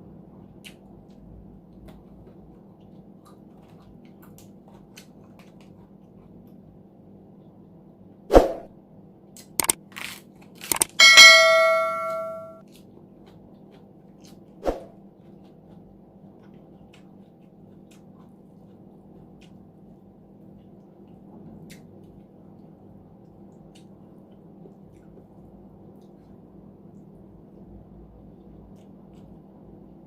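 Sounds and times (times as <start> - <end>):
ringing cutlery strike: 10.8 - 12.6.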